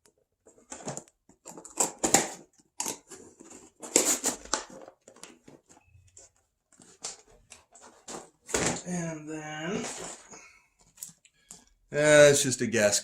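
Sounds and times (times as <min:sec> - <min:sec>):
plastic and paper wrapping tearing: 0:01.5 - 0:05.4.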